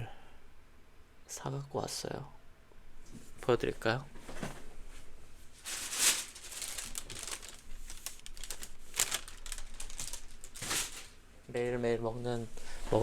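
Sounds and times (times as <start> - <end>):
medicine bag crinkling: 5.6 - 11.2.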